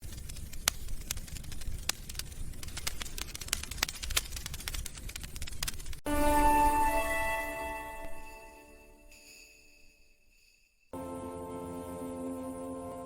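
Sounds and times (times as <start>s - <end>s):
fireplace crackling and popping: 0.0s - 6.0s
low rumble of fire: 0.0s - 6.0s.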